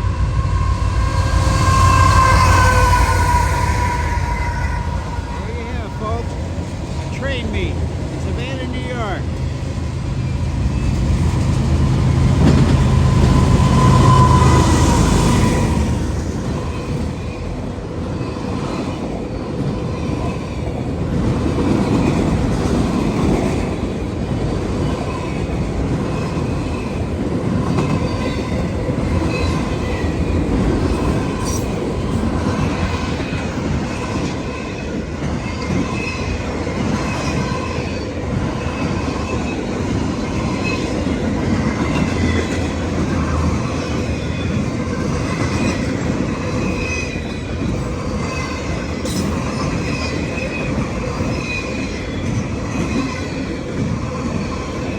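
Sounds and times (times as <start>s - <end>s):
high-pitched wheel squeals: 0.0s - 6.4s, 12.4s - 15.9s, 31.0s - 31.9s
freight train rumbling past: 0.0s - 54.9s.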